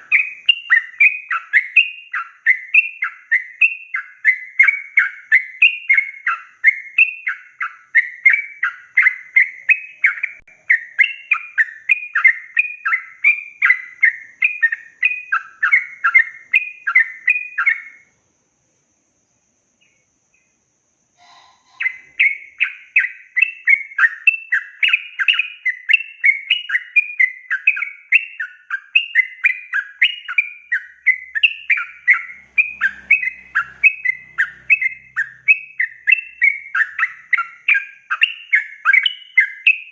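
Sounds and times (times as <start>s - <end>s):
bird singing chattering whistles: 0.0s - 18.1s, 21.2s - 39.9s.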